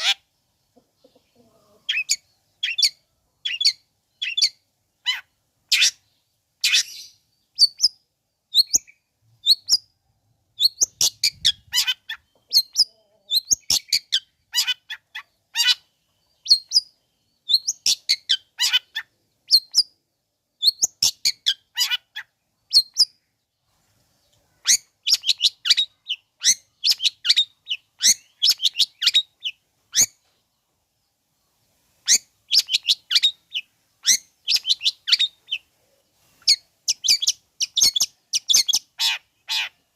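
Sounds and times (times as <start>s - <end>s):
shrike chirping and chattering: 10.6s - 16.8s, 17.5s - 19.8s, 24.6s - 30.2s, 32.0s - 35.7s, 36.3s - 39.8s.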